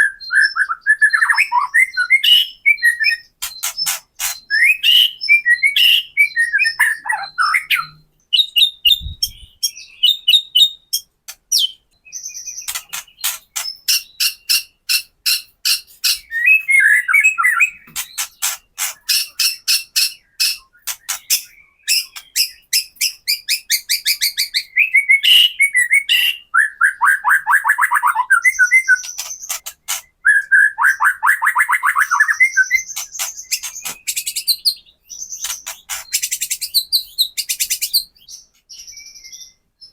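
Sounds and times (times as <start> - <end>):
bird warbled whistles: 30.2 - 34.6.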